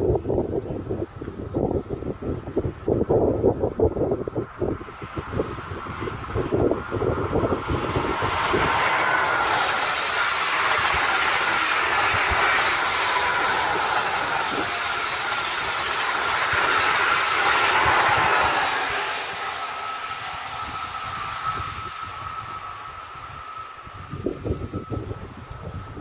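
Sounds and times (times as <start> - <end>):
wheels clickety-clack: 1.2 - 26.0
train passing: 1.8 - 26.0.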